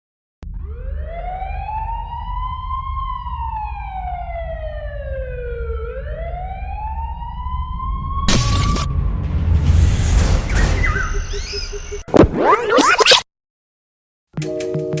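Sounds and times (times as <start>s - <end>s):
siren-like wail: 0.4s - 9.4s, 10.5s - 12.8s
low steady rumble: 0.4s - 12.0s.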